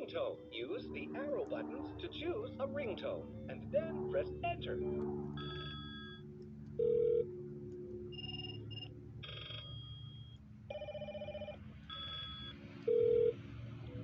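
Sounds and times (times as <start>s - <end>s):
toy phone electronic ringtones: 8.1s - 13.4s.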